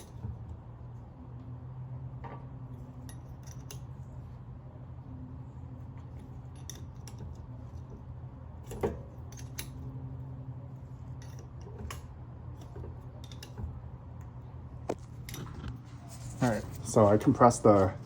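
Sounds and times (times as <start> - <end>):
steady low hum: 0.0 - 18.0
metal tool clicks and scrapes: 3.0 - 4.1, 6.0 - 8.0, 8.7 - 9.9, 10.9 - 13.8.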